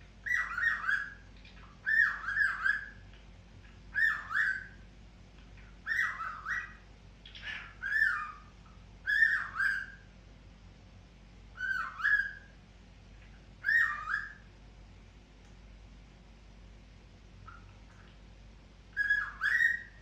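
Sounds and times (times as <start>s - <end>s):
cockatiel whistling: 0.2s - 1.2s, 1.8s - 3.0s, 3.9s - 4.8s, 5.8s - 6.8s, 7.8s - 10.0s, 11.6s - 12.5s, 13.6s - 14.5s, 19.0s - 20.0s.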